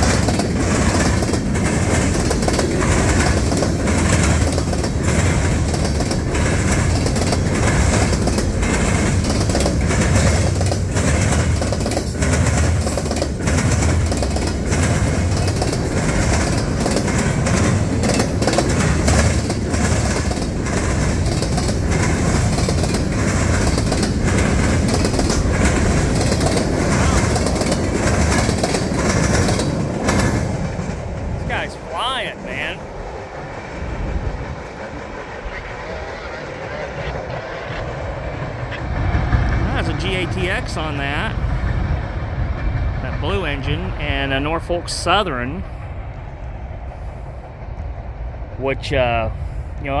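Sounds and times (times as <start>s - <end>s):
wheels clacking over rail joints: 0.0s - 36.3s
train wheels rumbling on rail: 0.0s - 50.0s.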